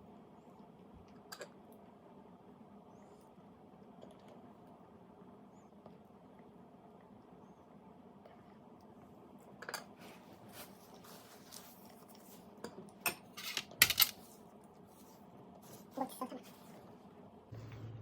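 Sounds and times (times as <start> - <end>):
low steady hum: 0.0 - 18.0
kitchenware clattering: 13.0 - 14.2
kitchenware clicking and clinking: 13.0 - 14.3.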